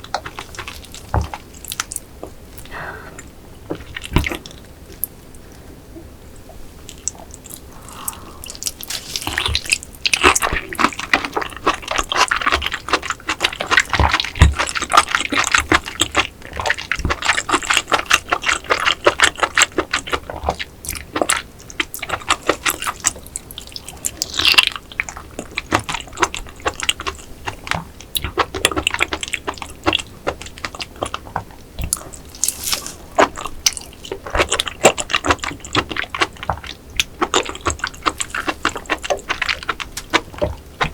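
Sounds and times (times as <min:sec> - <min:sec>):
close chewing with wet clicks: 0:00.0 - 0:02.7, 0:06.8 - 0:40.9.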